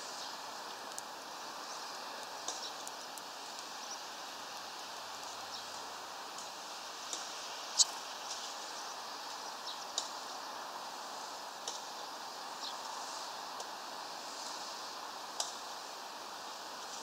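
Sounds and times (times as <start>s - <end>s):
background hiss: 0.0s - 17.0s
small birds chirping: 0.1s - 5.9s, 7.1s - 10.5s.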